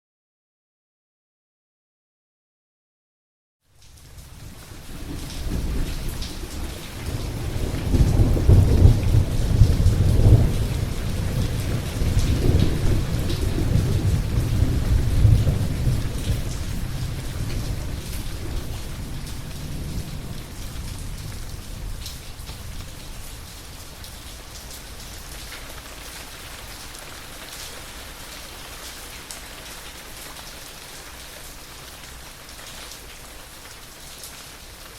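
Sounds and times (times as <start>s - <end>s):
steady rain falling: 3.6s - 34.9s
low rumble of thunder: 4.4s - 25.2s.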